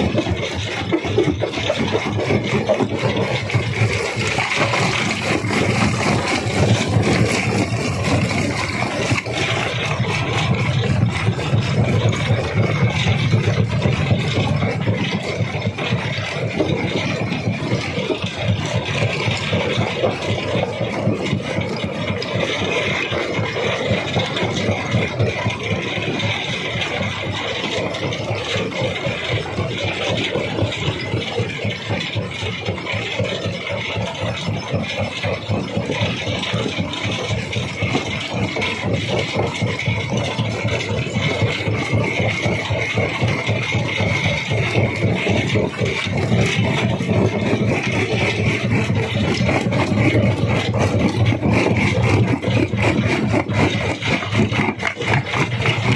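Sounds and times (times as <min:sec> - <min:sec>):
engine drone: 0:00.0 - 0:55.9
rattle and grinding of stone: 0:00.0 - 0:55.9.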